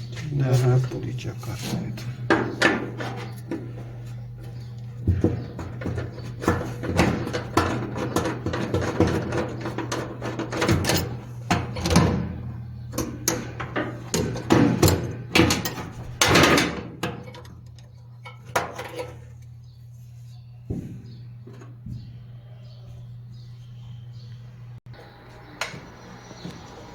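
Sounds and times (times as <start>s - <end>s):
steady low hum: 0.0s - 26.9s
metal parts knocking and clattering: 4.5s - 19.4s.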